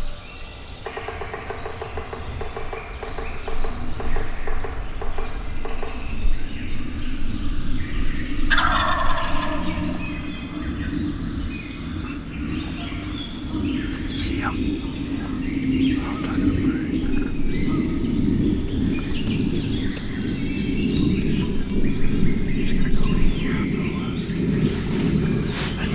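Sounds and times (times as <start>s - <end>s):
turkey gobbling: 7.8s - 24.5s.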